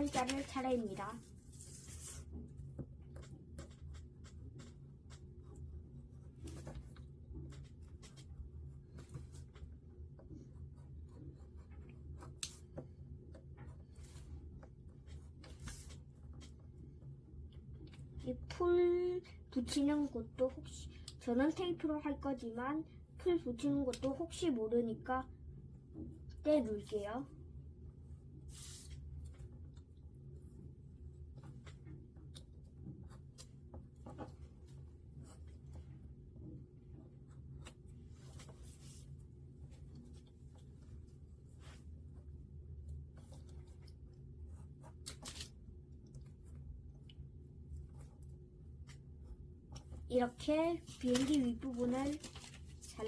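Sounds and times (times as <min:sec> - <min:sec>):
paper rustling: 0:00.0 - 0:02.3, 0:28.5 - 0:29.4, 0:44.9 - 0:45.6, 0:50.8 - 0:53.0
paper scratchy rubs and clicks: 0:00.0 - 0:12.8, 0:28.5 - 0:29.5
steady low hum: 0:00.0 - 0:53.0.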